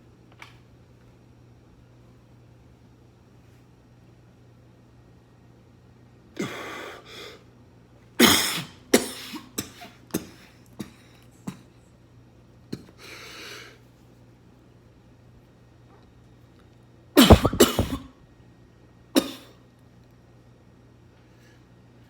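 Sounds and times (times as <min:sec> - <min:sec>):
person coughing: 0:17.2 - 0:18.0
short sharp knocks: 0:17.2 - 0:18.0.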